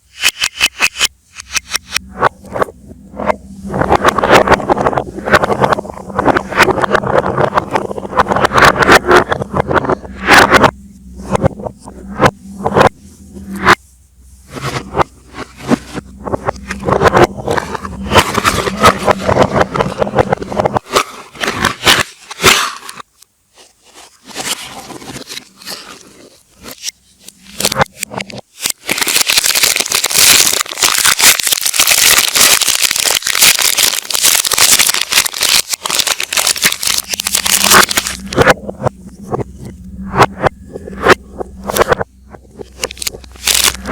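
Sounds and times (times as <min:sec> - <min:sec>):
packaging crinkling and rustling: 0:27.5 - 0:38.4, 0:42.7 - 0:43.9.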